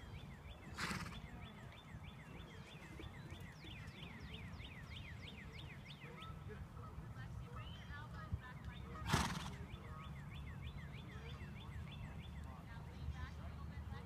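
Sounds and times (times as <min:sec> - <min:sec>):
songbird singing whistled notes: 0:00.0 - 0:06.4, 0:09.7 - 0:12.7.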